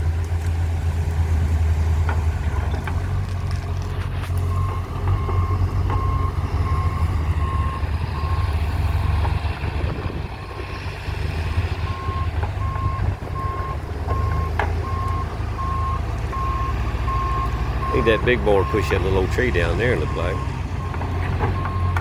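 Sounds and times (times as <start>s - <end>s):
diesel engine under load: 0.0s - 22.0s
backup alarm beeping: 4.5s - 8.5s, 11.9s - 20.9s, 21.6s - 22.0s.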